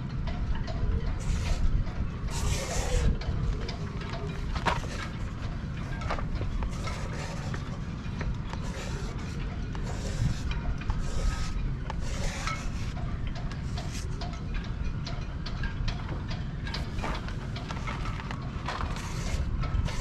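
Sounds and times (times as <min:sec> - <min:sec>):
steady low rumble: 0:00.0 - 0:20.0
rubbing and scraping handling noise: 0:01.1 - 0:14.3, 0:16.7 - 0:20.0.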